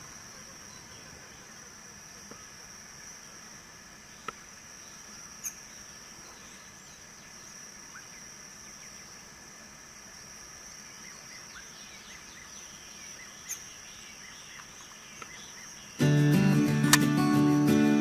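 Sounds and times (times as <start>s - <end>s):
faint bird chirps: 0.0s - 3.3s, 4.0s - 9.3s, 10.5s - 16.2s
high insect drone: 0.0s - 18.0s.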